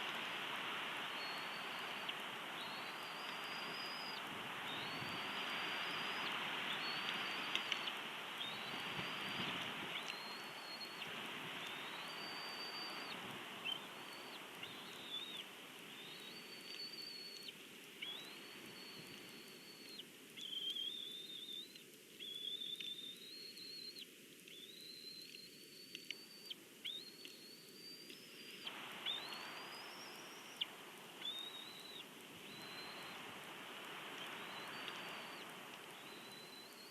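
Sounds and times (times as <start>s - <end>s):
wind hiss: 0.0s - 20.5s, 28.3s - 36.9s.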